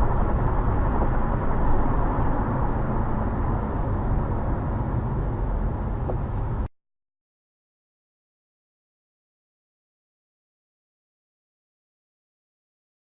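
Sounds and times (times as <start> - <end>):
car road and engine rumble: 0.0 - 6.7.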